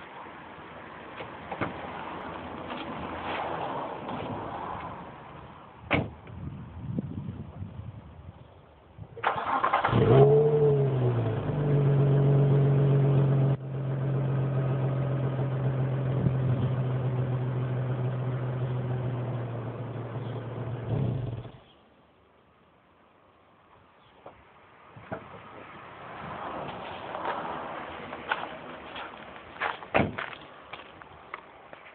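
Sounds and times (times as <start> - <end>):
car starter cranking: 9.2 - 10.4.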